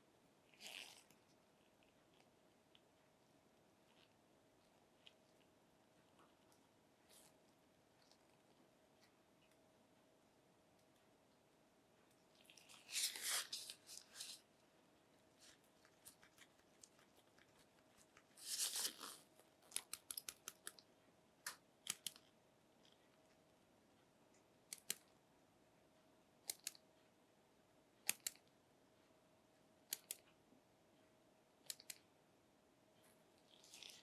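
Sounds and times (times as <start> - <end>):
faint steady hum: 0.0 - 34.0
packaging rustle: 18.4 - 19.3.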